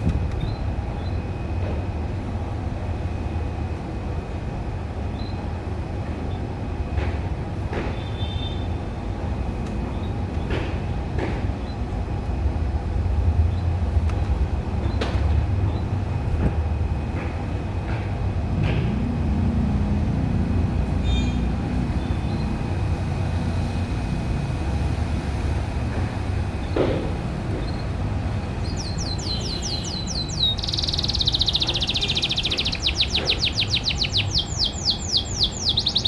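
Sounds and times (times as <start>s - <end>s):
steady low rumble: 9.1s - 30.6s
canary chirping: 28.6s - 36.0s.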